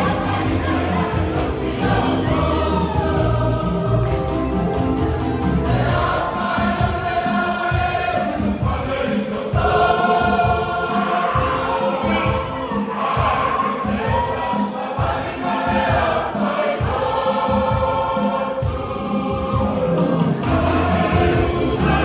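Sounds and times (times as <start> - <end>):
low accompaniment: 0.0 - 6.3, 19.6 - 22.0
choir singing a hymn: 0.0 - 22.0.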